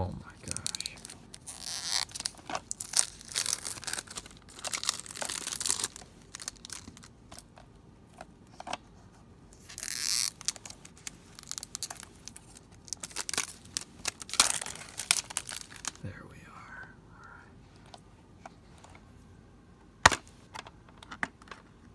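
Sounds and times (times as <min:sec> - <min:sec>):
plastic ripping: 0:00.4 - 0:07.5, 0:09.6 - 0:16.0
plastic shrink-wrap crinkling: 0:00.4 - 0:07.5, 0:09.6 - 0:16.0.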